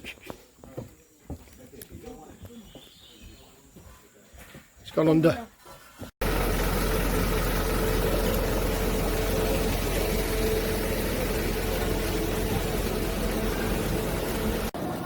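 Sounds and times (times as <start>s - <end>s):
engine rumbling: 6.2s - 15.0s.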